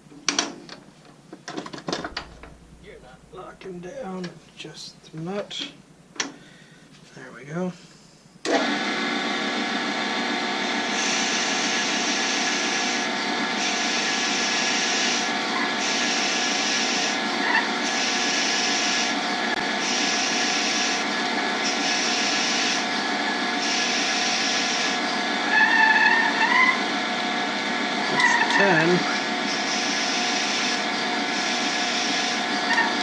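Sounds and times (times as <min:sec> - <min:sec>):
lathe motor whine: 0:08.5 - 0:33.0
drill bit boring into wood: 0:10.6 - 0:26.8, 0:28.1 - 0:33.0.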